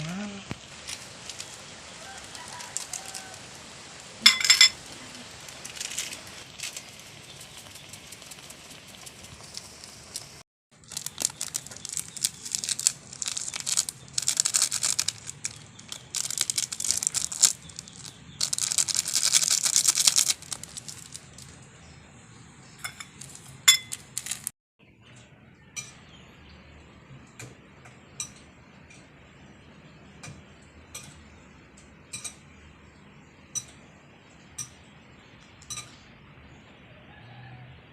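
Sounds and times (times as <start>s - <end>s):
rain falling: 0.0s - 21.6s, 23.2s - 24.5s.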